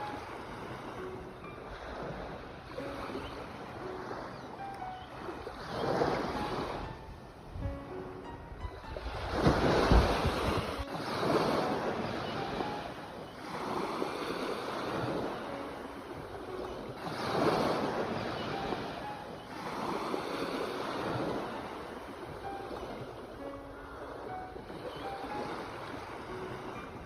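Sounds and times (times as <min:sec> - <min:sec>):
sea waves breaking on shore: 0:00.0 - 0:27.0.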